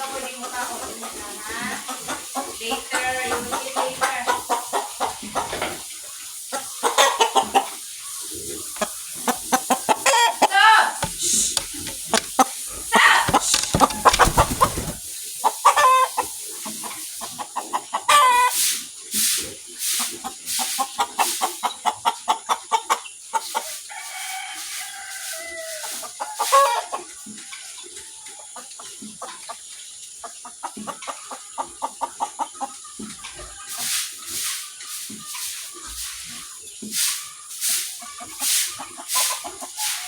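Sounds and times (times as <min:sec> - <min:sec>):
chickens clucking: 0:00.0 - 0:40.0
rooster crowing: 0:23.9 - 0:26.0.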